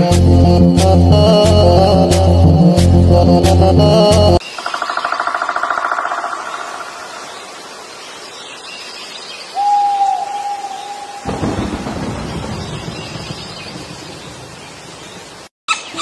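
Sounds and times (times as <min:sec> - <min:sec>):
steady rain: 0:06.6 - 0:15.5
thunder rumbling: 0:11.0 - 0:15.3.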